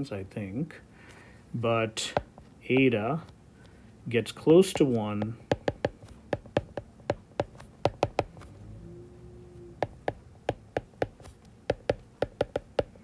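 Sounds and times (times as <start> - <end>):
pen tapping on writing surface: 4.7 - 8.5, 9.8 - 13.0.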